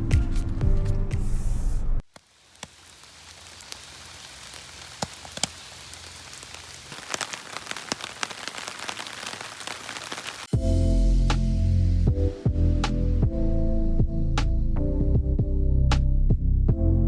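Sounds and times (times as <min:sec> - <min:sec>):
sharp taps and crackles: 0:02.1 - 0:10.5.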